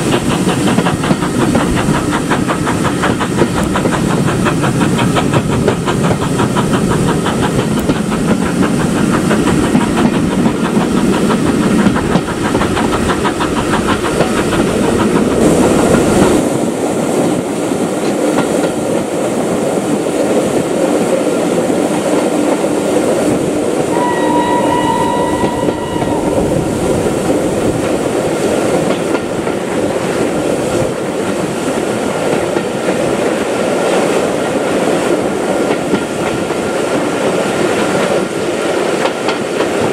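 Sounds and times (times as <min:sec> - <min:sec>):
steam train running on rails: 0:00.0 - 0:39.9
locomotive whistle: 0:23.9 - 0:27.2.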